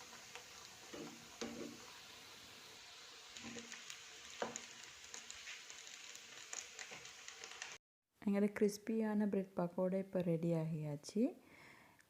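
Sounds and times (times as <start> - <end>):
food sizzling in hot oil: 0.0 - 7.8.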